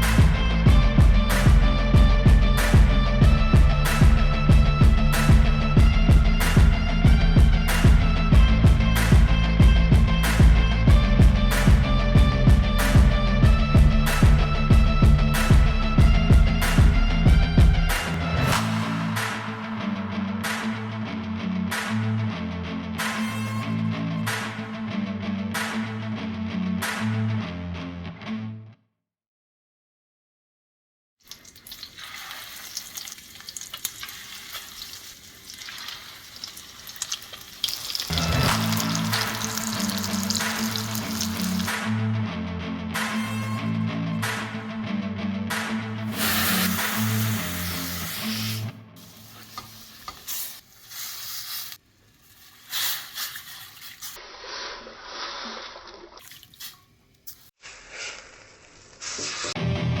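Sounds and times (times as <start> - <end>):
music with pitched bass: 0.0 - 28.6, 38.1 - 49.0, 59.6 - 60.0
food sizzling in a pan: 31.4 - 41.7, 46.1 - 54.2
stirring in a pan: 49.0 - 56.1.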